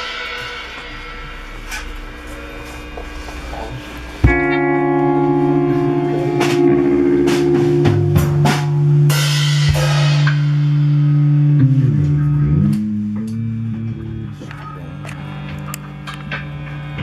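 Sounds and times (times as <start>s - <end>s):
drum hits: 0.0s - 11.4s
cymbal crashes: 0.0s - 11.6s
bass guitar notes: 0.0s - 17.0s
electric guitar: 0.0s - 17.0s.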